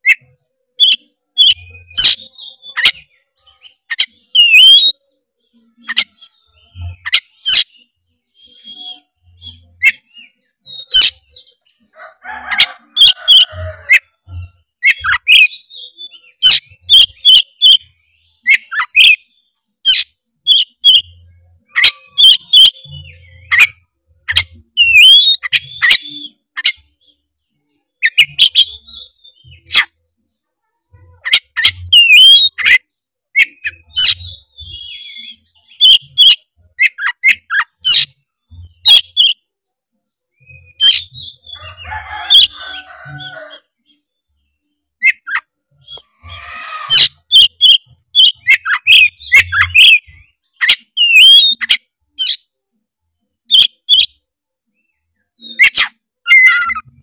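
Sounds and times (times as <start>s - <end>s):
bird singing whistled notes: 0.8s - 5.0s, 5.7s - 11.8s, 14.8s - 27.2s, 31.3s - 32.8s, 33.4s - 39.4s, 45.0s - 52.4s.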